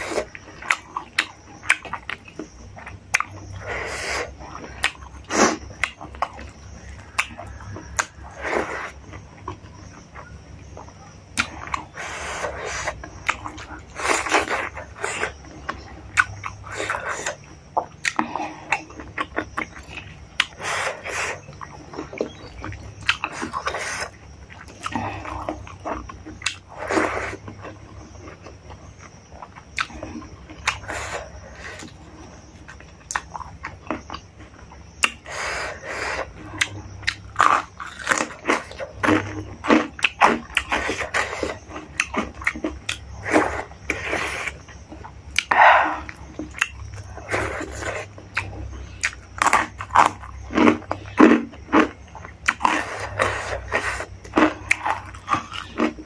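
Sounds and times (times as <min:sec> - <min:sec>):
person chewing food: 0:00.0 - 0:56.0
wet mouth sounds: 0:40.0 - 0:49.2.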